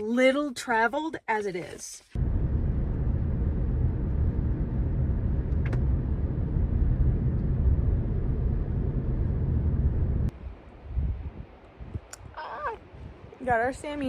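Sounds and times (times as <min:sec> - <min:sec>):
car driving rumble: 0:02.2 - 0:10.6.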